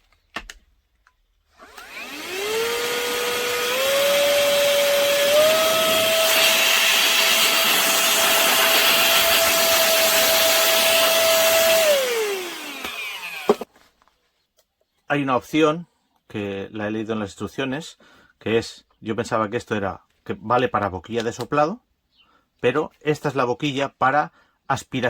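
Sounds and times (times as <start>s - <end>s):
vacuum blower motor whining: 1.6s - 13.7s.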